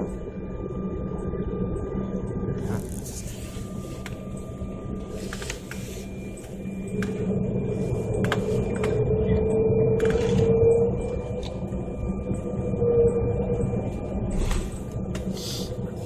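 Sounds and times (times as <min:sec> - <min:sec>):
aircraft engines rumbling: 0:02.4 - 0:12.8, 0:13.5 - 0:16.0.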